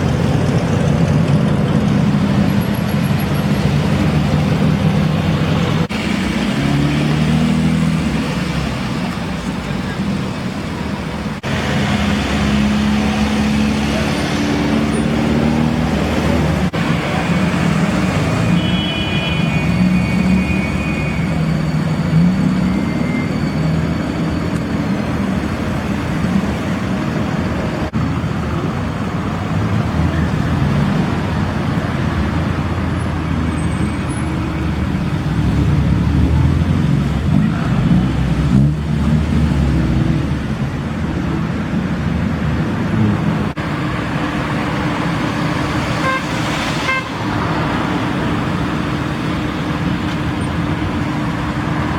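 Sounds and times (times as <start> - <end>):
cars driving past: 0.0 - 51.9
road noise: 0.0 - 51.9
car horn toot: 18.4 - 21.3, 46.0 - 47.2.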